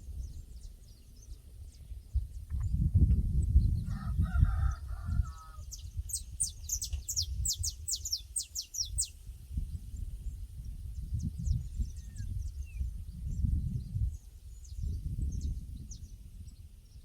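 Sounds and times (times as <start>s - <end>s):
low gusty rumble: 0.0s - 8.0s, 9.1s - 17.0s
small bird singing: 0.0s - 17.0s
rooster crowing: 3.9s - 5.7s.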